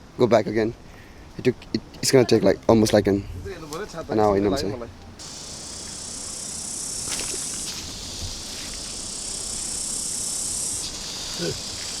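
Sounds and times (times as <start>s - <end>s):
insect chorus: 5.2s - 12.0s.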